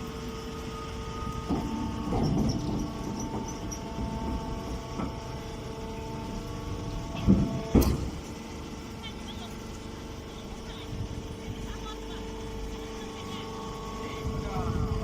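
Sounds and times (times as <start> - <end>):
baling machine humming: 0.0 - 15.0
machine knocks: 7.2 - 8.2.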